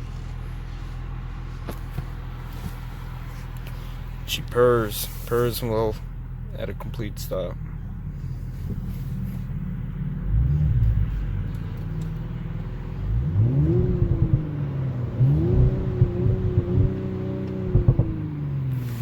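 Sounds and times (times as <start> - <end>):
car engine revving: 7.6 - 19.0
exhaust pops: 13.1 - 14.6, 15.2 - 19.0.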